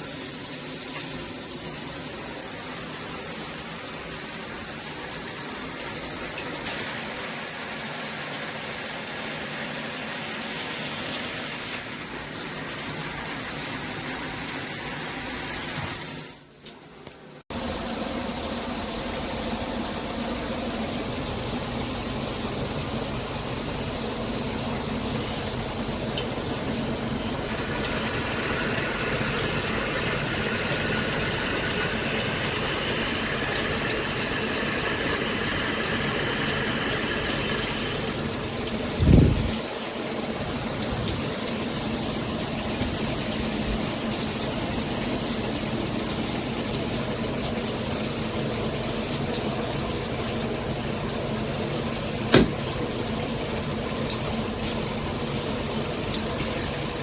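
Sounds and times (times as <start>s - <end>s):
water spraying from shower head: 17.6s - 48.3s.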